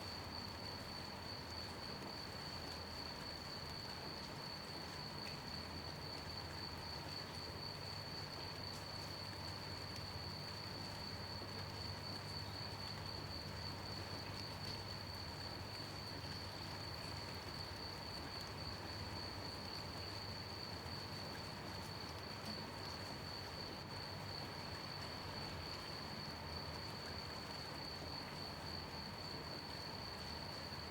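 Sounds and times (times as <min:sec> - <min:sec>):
gentle rain falling: 0:00.0 - 0:30.9
crickets chirping: 0:23.3 - 0:30.9.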